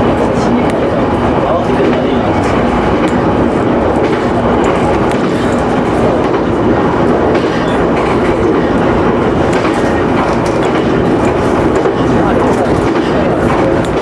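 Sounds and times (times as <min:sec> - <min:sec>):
rail joint clicks: 0:00.0 - 0:14.0
train wheels rumbling on rails: 0:00.0 - 0:14.0.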